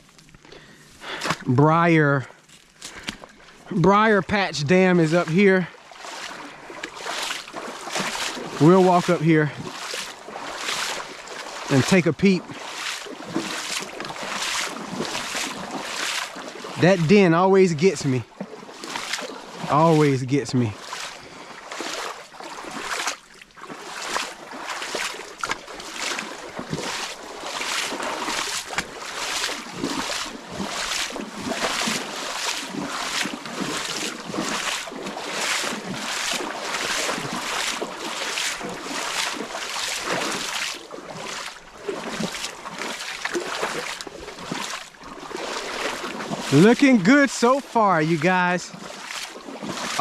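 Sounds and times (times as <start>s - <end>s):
flowing creek water: 0.0s - 50.0s
footsteps crunching through leaves: 2.4s - 3.7s, 9.7s - 16.7s, 18.6s - 50.0s.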